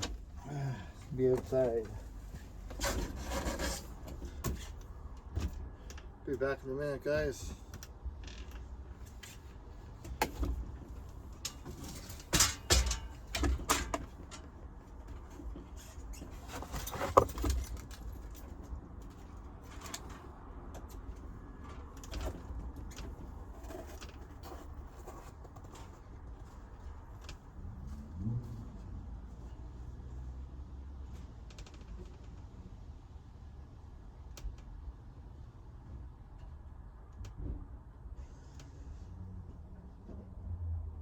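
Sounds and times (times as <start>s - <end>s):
knocks and clunks: 0.0s - 6.2s, 8.5s - 26.6s.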